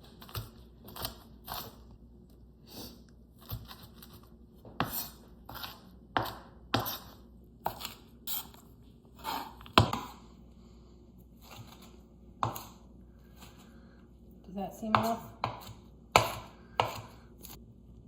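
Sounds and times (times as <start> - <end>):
knife chopping on cutting board: 4.7 - 8.5, 9.2 - 10.2, 11.4 - 12.8, 14.9 - 17.2.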